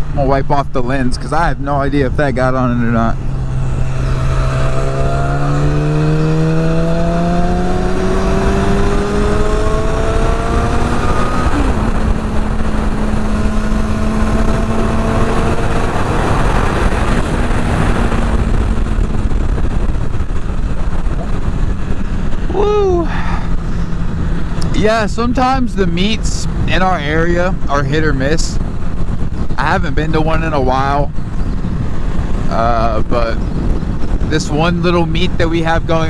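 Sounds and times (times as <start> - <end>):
motorcycle engine revving: 0.0 - 36.0
wind buffeting microphone: 0.0 - 36.0.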